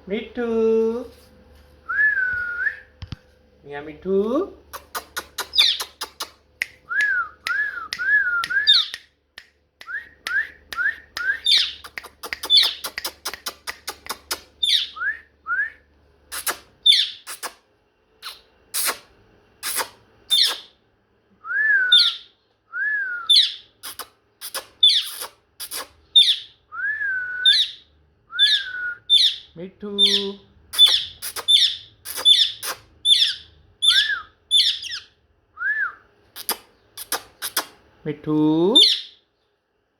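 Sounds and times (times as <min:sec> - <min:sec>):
parrot chirping: 0:04.7 - 0:06.4, 0:08.6 - 0:09.1, 0:11.2 - 0:15.1, 0:16.3 - 0:17.6, 0:18.2 - 0:19.0, 0:19.6 - 0:20.8, 0:21.9 - 0:22.3, 0:23.3 - 0:26.6, 0:27.4 - 0:35.2, 0:36.4 - 0:37.8, 0:38.8 - 0:39.2
parrot whistling: 0:06.9 - 0:09.0, 0:21.6 - 0:23.6, 0:30.8 - 0:36.0
parrot clicks: 0:11.7 - 0:14.5.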